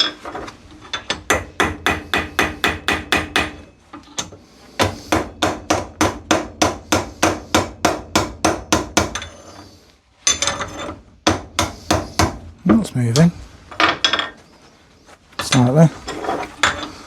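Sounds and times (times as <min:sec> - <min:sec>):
rasping scraping noise: 0:14.3 - 0:17.0.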